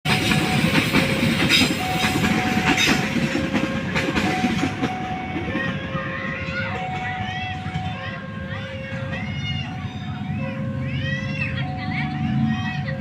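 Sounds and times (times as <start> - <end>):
two-note warning alarm: 0.1 - 6.0
train wheels clacking: 0.1 - 8.2.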